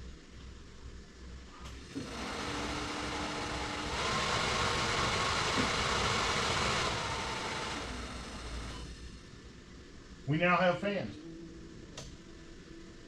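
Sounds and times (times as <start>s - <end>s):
heater blower fan running: 1.5s - 10.2s.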